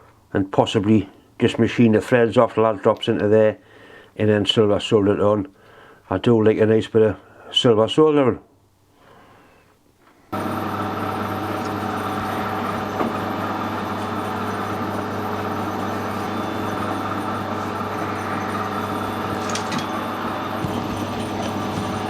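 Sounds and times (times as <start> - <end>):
metal lathe humming and whining: 10.4 - 22.0.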